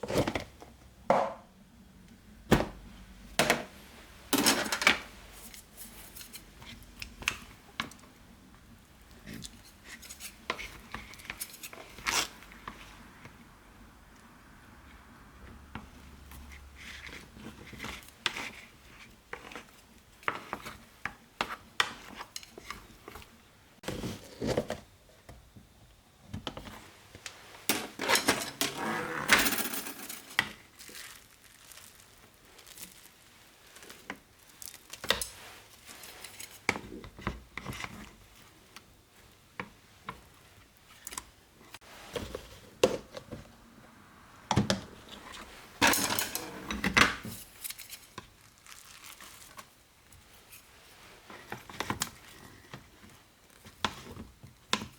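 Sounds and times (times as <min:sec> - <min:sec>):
utensils and dishes clinking: 0:04.4 - 0:05.0, 0:27.7 - 0:30.6, 0:45.8 - 0:47.8
scraping and clattering: 0:27.7 - 0:30.6.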